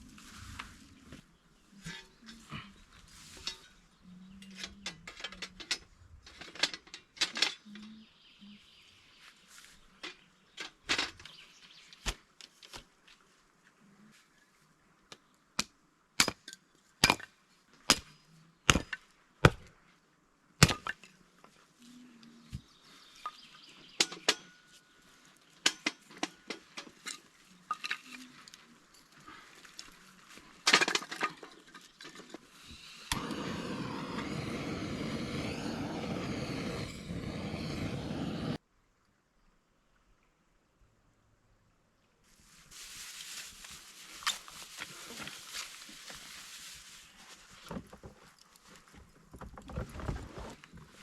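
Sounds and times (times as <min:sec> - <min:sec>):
rustling: 0:42.3 - 0:51.0.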